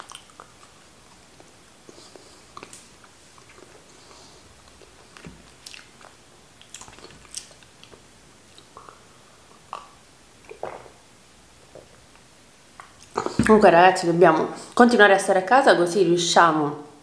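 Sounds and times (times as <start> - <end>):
chewing green beans: 0.0 - 11.0.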